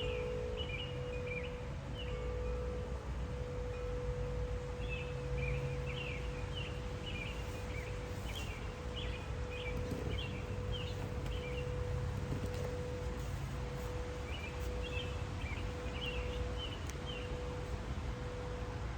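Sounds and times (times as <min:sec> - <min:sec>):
garden birds chirping: 0:00.0 - 0:18.9
low outdoor rumble: 0:00.0 - 0:18.9
wind chime tone ringing: 0:00.0 - 0:18.9.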